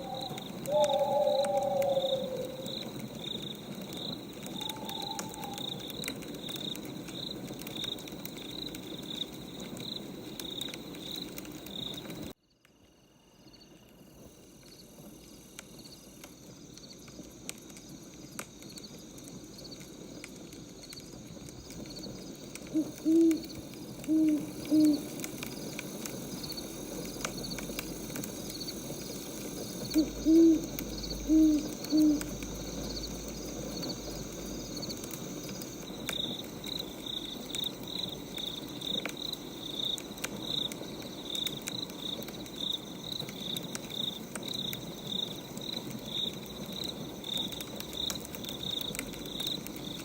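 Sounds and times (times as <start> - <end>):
owl hooting: 0.0 - 3.0, 4.4 - 6.0, 22.7 - 25.3, 29.8 - 32.6
wood fire crackling: 0.0 - 12.4, 13.8 - 50.0
insects chirping: 0.0 - 50.0.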